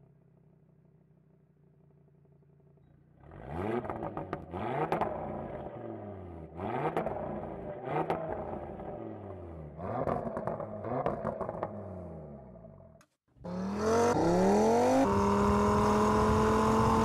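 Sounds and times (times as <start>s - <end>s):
car engine revving: 3.2s - 12.6s, 13.4s - 17.0s.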